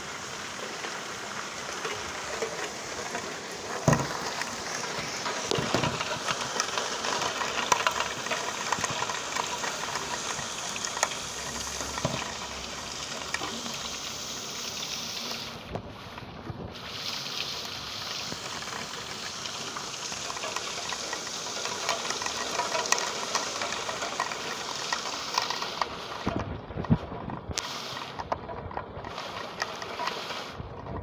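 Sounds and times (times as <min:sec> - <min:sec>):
rain falling: 0:00.0 - 0:30.6
heavy raindrop knocks: 0:00.7 - 0:13.8.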